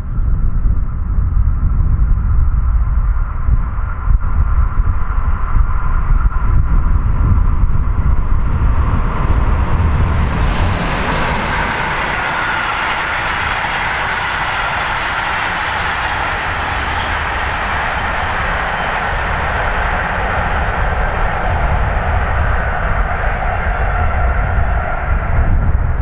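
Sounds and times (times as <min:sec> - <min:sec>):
locomotive low rumble: 0:00.0 - 0:26.0
train wheels rushing on rails: 0:08.5 - 0:25.6.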